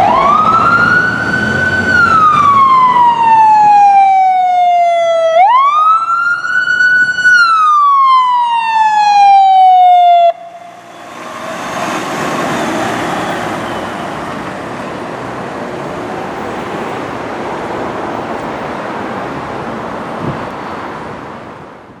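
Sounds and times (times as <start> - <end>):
fire engine siren wailing: 0.0 - 17.4
engine and road noise: 0.0 - 22.0.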